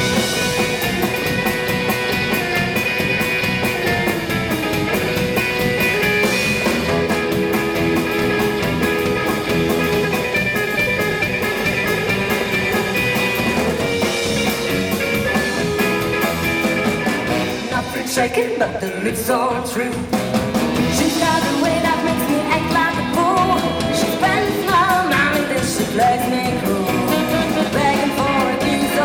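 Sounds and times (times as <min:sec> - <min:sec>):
drum beat: 0:00.0 - 0:18.6
lead guitar: 0:00.0 - 0:29.0.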